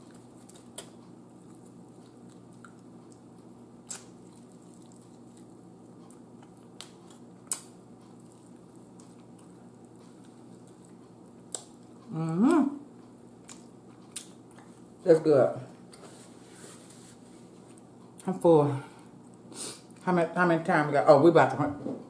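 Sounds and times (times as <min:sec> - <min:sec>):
person chewing food: 0:00.0 - 0:12.1, 0:12.9 - 0:14.9
faint steady hum: 0:00.0 - 0:22.0.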